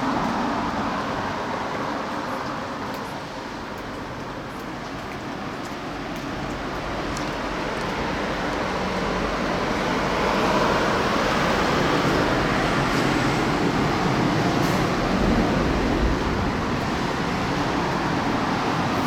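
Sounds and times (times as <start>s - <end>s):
strong wind gusts: 8.8s - 19.0s.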